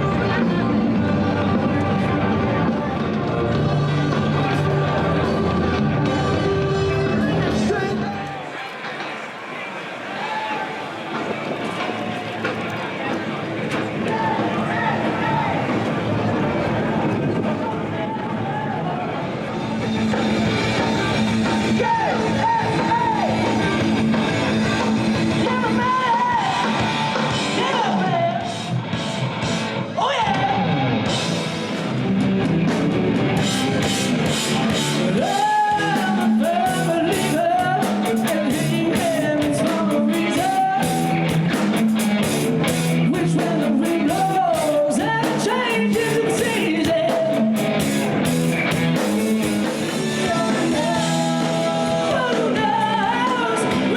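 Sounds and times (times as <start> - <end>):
lead singer singing: 0.0 - 8.7, 20.1 - 28.8, 34.2 - 42.0, 42.7 - 47.8, 49.0 - 53.9
rock band playing: 0.0 - 17.6, 19.0 - 53.9
guitar: 0.0 - 53.9
drums and cymbals: 19.4 - 53.9.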